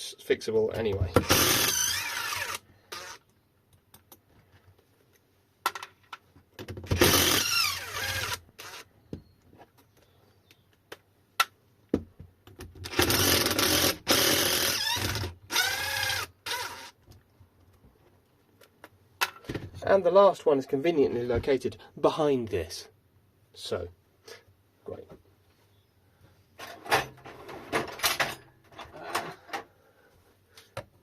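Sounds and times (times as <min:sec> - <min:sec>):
cordless power driver spinning: 0:01.2 - 0:03.3, 0:06.9 - 0:08.9, 0:12.9 - 0:17.0.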